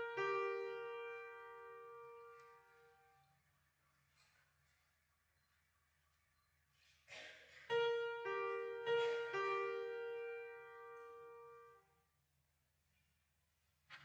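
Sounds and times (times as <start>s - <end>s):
piano notes struck: 0.0s - 3.1s, 7.7s - 11.8s.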